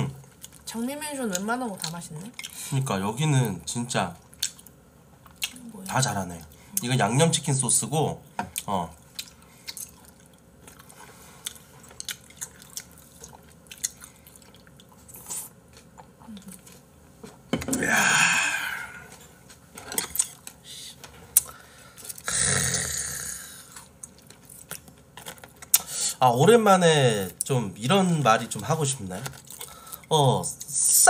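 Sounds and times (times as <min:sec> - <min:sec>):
chewing and mouth-smacking: 0:00.2 - 0:02.6, 0:04.2 - 0:05.6, 0:08.6 - 0:16.9, 0:23.7 - 0:25.9, 0:29.2 - 0:30.0
loud drawn-out burps: 0:22.2 - 0:23.5.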